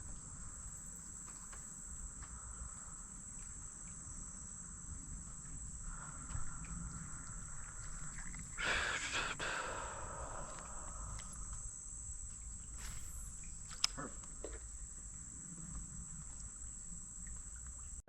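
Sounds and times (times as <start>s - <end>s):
insects buzzing: 0.0s - 18.0s
short rustle or splash: 12.7s - 13.8s.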